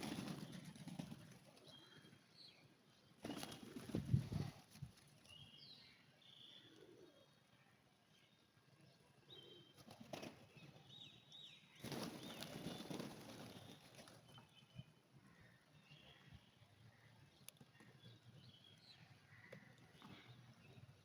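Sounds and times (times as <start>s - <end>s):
pigeon wings flapping: 0.0s - 1.5s, 3.2s - 4.6s, 11.8s - 14.3s.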